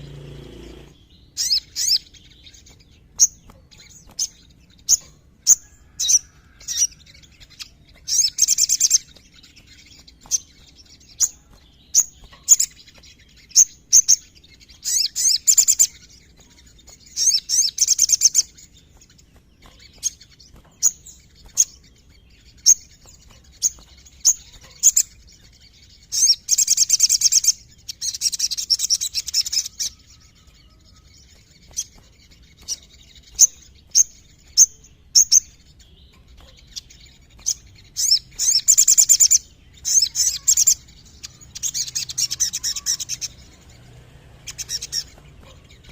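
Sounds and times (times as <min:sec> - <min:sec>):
bird trilling: 0:00.0 - 0:02.1, 0:37.4 - 0:43.7, 0:44.4 - 0:45.9.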